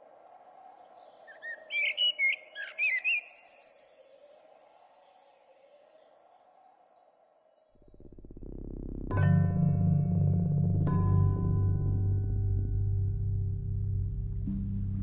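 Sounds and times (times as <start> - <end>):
bird chirps: 0.8 - 4.0.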